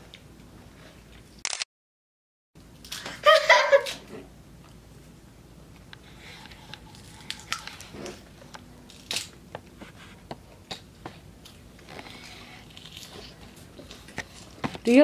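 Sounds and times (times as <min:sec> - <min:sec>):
children crunching lettuce: 0:06.2 - 0:09.3, 0:11.4 - 0:14.6.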